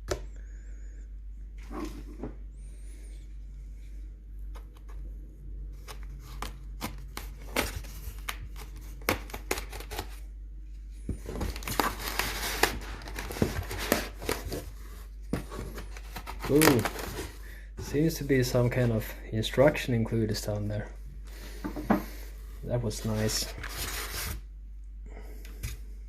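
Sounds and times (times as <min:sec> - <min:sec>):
packing material crinkling and tearing: 0:11.2 - 0:14.7, 0:15.5 - 0:17.3.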